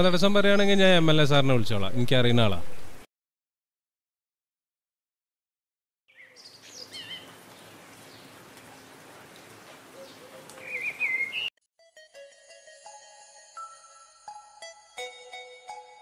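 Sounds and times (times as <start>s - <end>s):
birds chirping: 0.0s - 1.3s, 6.1s - 11.5s
bird warbling call: 6.1s - 11.5s.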